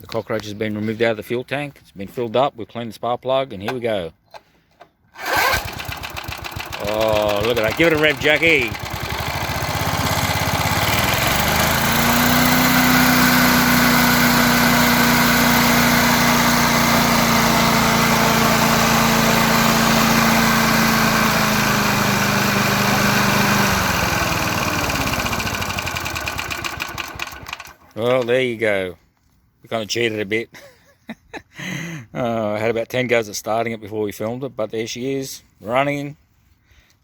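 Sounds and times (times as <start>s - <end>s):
lawn mower engine revving: 5.2s - 28.3s.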